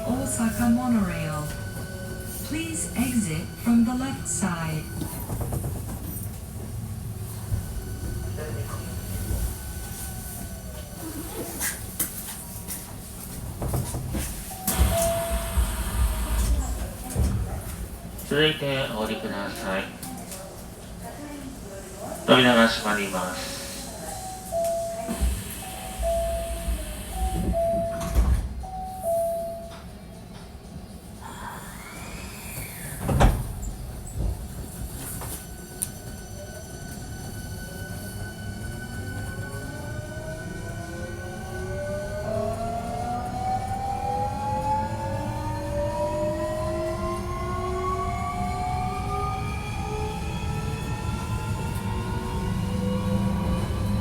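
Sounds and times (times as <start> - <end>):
train running rumble: 0.0 - 19.2.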